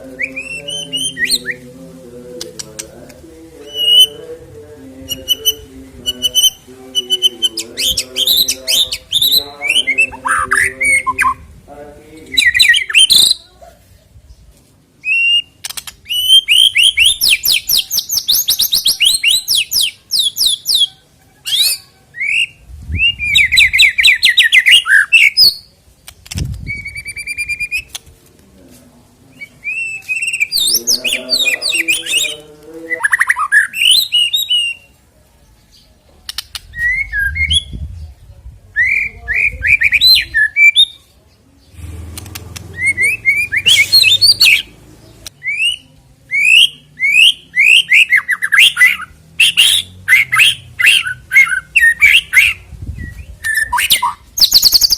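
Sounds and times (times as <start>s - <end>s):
low repeated bird notes: 0.0s - 13.5s, 29.3s - 35.0s, 35.6s - 54.9s
bird singing whistles and trills: 21.5s - 25.7s, 33.0s - 34.9s, 45.4s - 54.9s.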